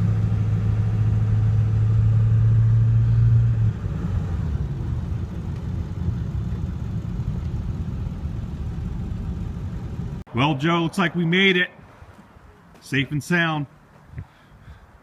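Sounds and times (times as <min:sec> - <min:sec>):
pickup engine running: 0:00.0 - 0:10.3
road rumble: 0:00.0 - 0:15.0.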